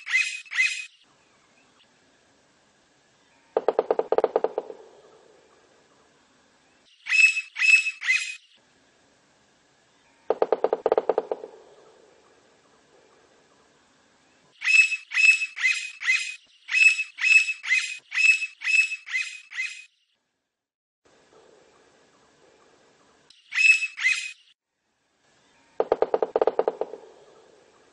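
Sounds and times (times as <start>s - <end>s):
woodpecker calling: 0.0s - 1.0s, 3.6s - 5.7s, 7.0s - 8.5s, 10.3s - 12.4s, 14.6s - 19.9s, 23.3s - 24.5s, 25.7s - 27.9s
woodpecker drumming rattle: 0.0s - 1.0s, 3.6s - 5.7s, 7.0s - 8.5s, 10.3s - 13.3s, 14.6s - 19.9s, 21.2s - 24.5s, 25.7s - 27.9s.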